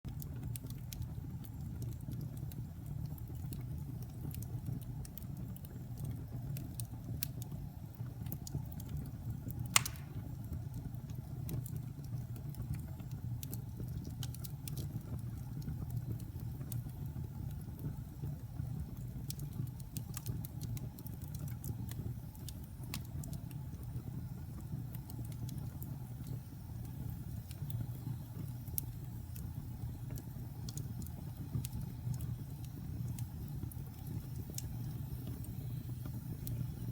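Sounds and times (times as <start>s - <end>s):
fire rumbling: 0.1s - 36.9s
loud pop of burning wood: 9.7s - 10.4s
wood crackling: 9.7s - 10.4s.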